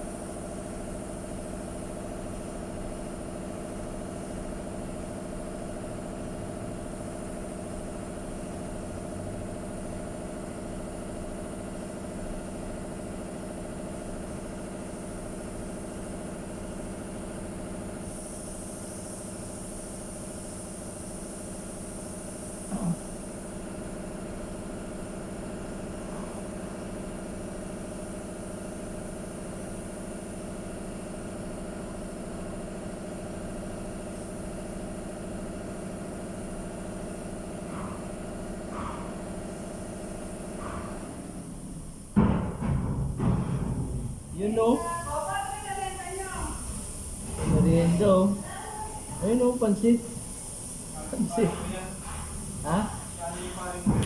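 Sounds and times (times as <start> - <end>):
high hiss: 18.0 - 23.6, 39.4 - 54.0.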